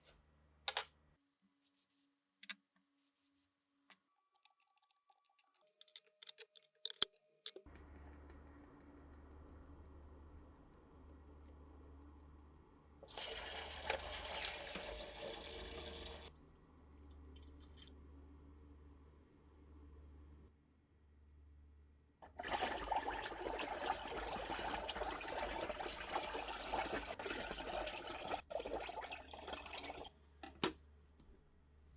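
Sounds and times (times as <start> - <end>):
water running from tap: 13.0 - 16.3, 22.2 - 30.1.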